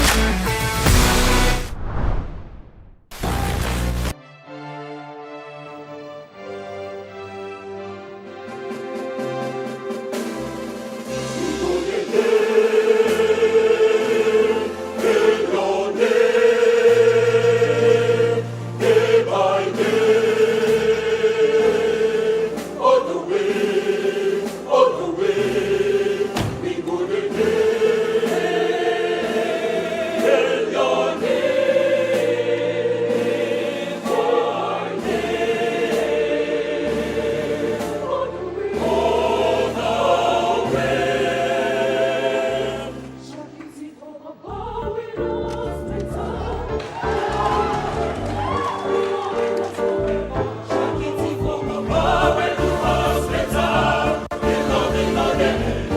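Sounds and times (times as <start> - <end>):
steady bass line: 3.1 - 4.2
choir singing in harmony: 5.0 - 55.9.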